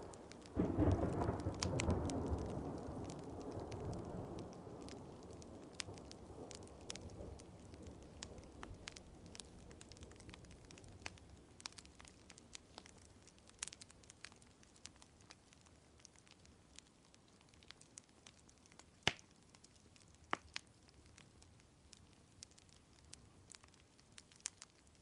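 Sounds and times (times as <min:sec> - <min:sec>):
thunder rumble: 0:00.0 - 0:10.4
wood fire crackling: 0:00.0 - 0:25.0.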